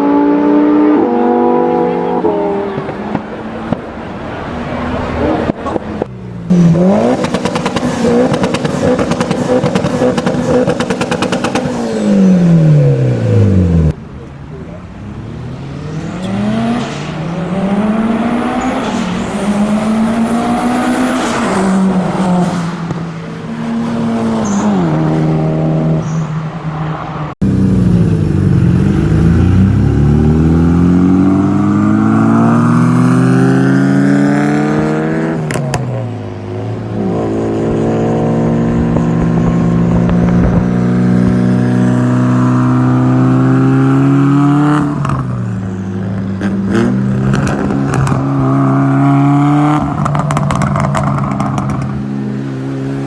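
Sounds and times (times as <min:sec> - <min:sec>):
car engine accelerating hard: 0:27.4 - 0:45.4.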